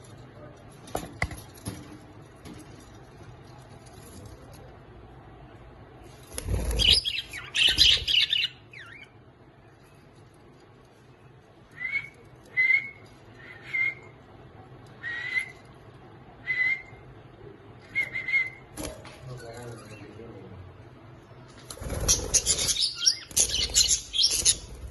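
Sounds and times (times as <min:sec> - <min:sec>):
lovebirds squawking chatter: 0:06.7 - 0:09.2, 0:22.0 - 0:24.9.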